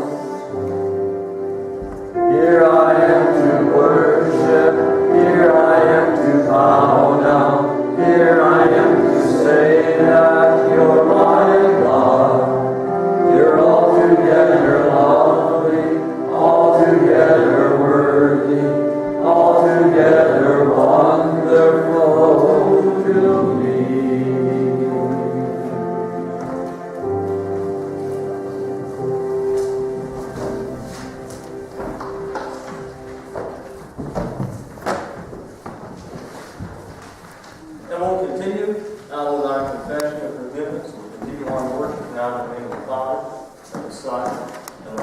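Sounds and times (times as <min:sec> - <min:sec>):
instrumental accompaniment: 0:00.0 - 0:45.0
group singing a hymn: 0:02.0 - 0:34.3.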